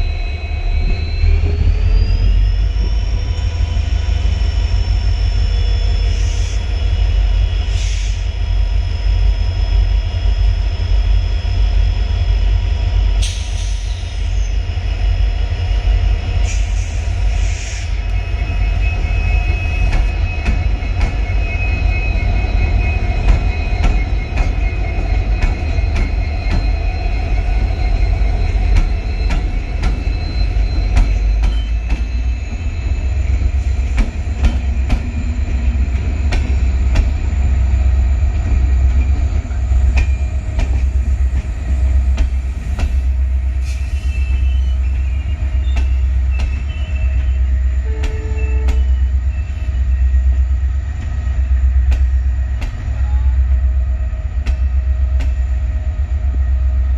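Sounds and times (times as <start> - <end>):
train rumble: 0.0 - 56.9
thin wheel squeal: 16.4 - 35.3, 42.9 - 50.0.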